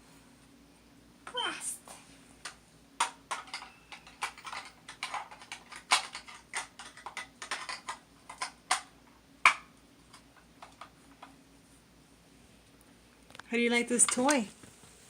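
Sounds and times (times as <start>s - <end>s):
plastic toy parts clicking: 3.0s - 8.9s.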